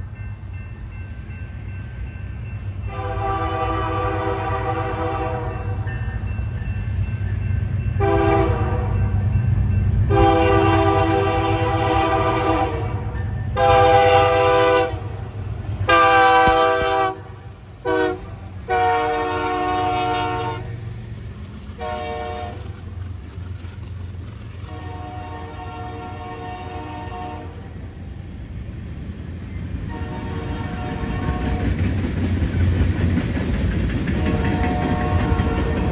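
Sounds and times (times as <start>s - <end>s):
low train rumble: 0.0s - 35.9s
locomotive air horn blasts: 2.9s - 5.8s, 8.0s - 9.0s, 10.1s - 15.2s, 15.9s - 20.7s, 21.8s - 22.6s, 24.7s - 27.7s, 29.9s - 31.6s, 34.2s - 35.9s.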